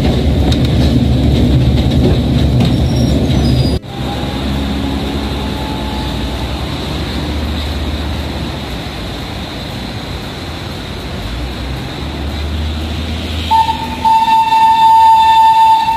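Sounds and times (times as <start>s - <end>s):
train rumbling on rails: 0.0s - 15.9s
high wheel squeal: 2.6s - 8.4s, 13.2s - 15.9s.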